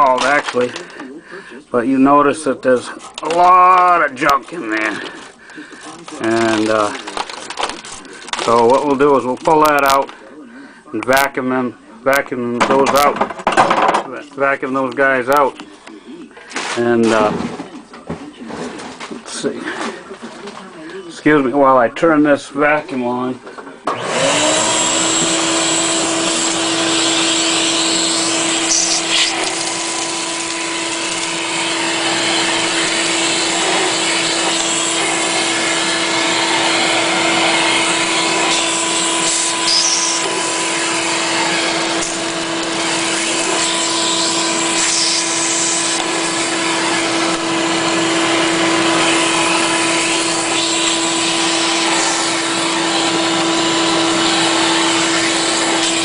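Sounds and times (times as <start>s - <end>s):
vacuum cleaner whining: 0.0s - 1.2s, 1.9s - 9.0s, 23.9s - 56.0s
knocks and rattles: 12.6s - 14.1s.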